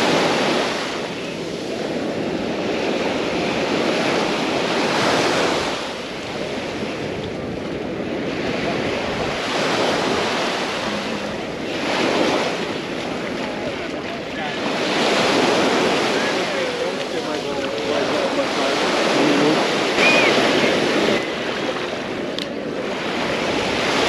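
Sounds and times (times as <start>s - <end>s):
sea waves washing ashore: 0.0s - 24.0s
wind noise on microphone: 0.0s - 24.0s.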